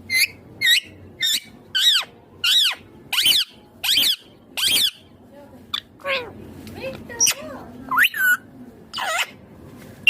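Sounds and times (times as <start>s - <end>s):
parakeet screeching calls: 0.1s - 5.1s, 7.2s - 9.4s.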